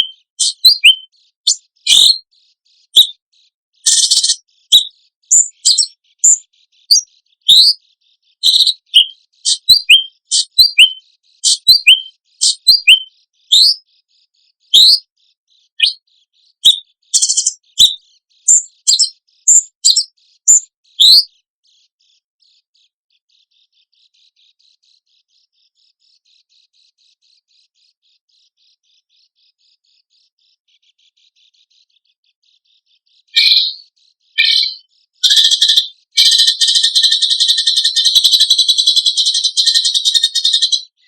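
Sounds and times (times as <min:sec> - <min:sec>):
sharp high bird chirps and whistles: 0:00.0 - 0:03.2, 0:03.8 - 0:13.9, 0:14.6 - 0:15.1, 0:15.7 - 0:21.4, 0:33.2 - 0:41.0
faint high twittering: 0:00.0 - 0:41.0.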